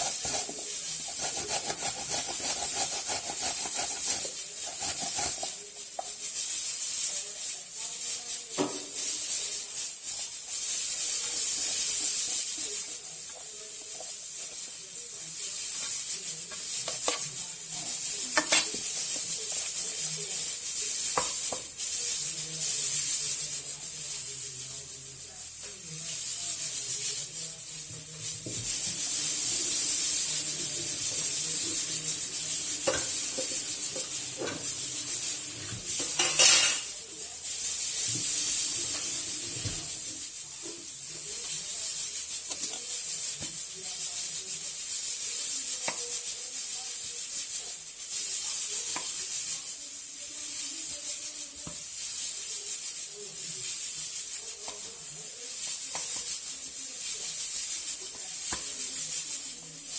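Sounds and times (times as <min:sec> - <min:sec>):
carrot grated on a grater: 0:00.0 - 0:07.2, 0:15.6 - 0:22.0, 0:55.5 - 0:59.0.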